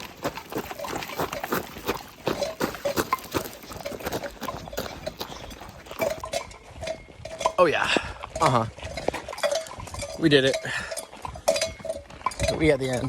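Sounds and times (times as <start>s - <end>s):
footsteps on a trail: 0.0s - 12.9s.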